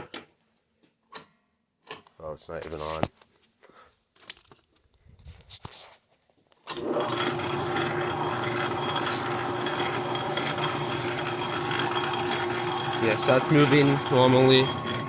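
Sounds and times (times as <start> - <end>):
metal lathe humming: 6.8 - 15.0.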